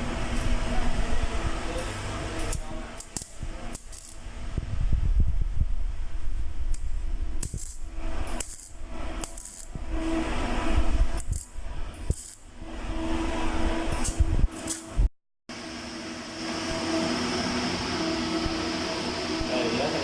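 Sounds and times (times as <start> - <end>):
wind rumble on microphone: 3.2 - 15.1.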